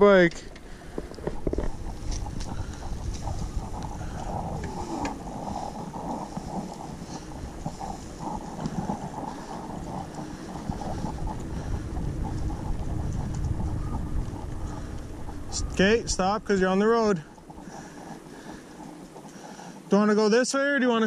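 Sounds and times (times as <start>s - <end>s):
wind rumble on microphone: 0.0s - 19.9s
faint clicks: 0.3s - 15.5s.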